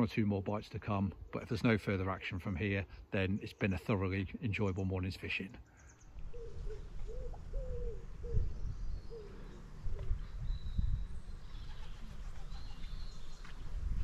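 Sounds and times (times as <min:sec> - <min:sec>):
bird calling in gliding notes: 0:05.7 - 0:13.7
low gusty rumble: 0:06.1 - 0:14.0.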